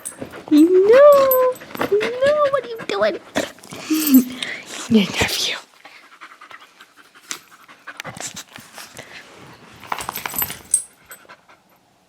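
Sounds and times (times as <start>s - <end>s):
dog panting: 0.0s - 9.3s.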